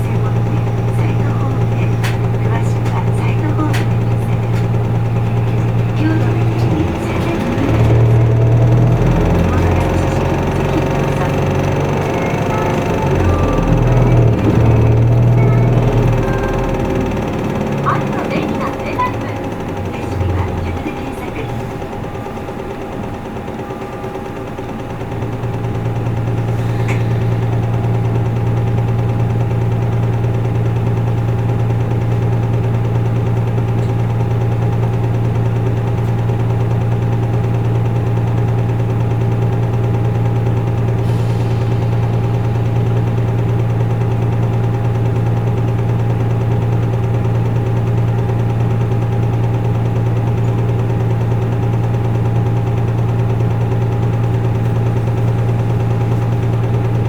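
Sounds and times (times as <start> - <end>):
bus diesel engine hum: 0.0 - 57.0.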